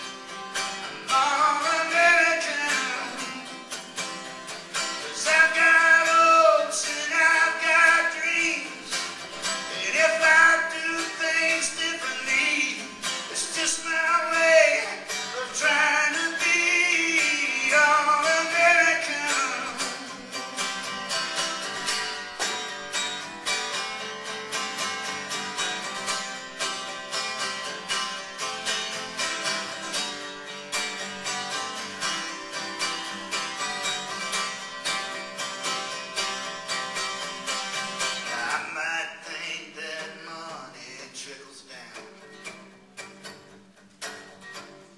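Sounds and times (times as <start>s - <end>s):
strummed acoustic guitar: 0.0s - 44.9s
person singing: 0.8s - 3.6s, 5.0s - 21.4s, 38.2s - 42.2s.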